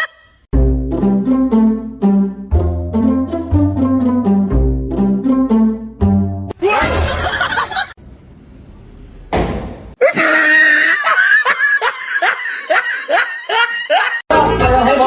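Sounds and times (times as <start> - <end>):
person laughing hard: 6.6 - 7.9, 10.0 - 14.3
noisy thump: 9.3 - 10.0.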